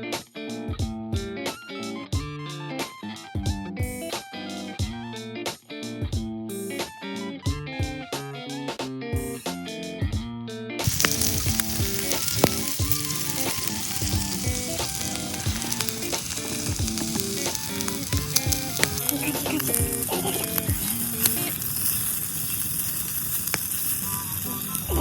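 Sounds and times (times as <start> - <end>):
guitar background music: 0.0 - 25.0
meat sizzling on grill: 10.8 - 25.0.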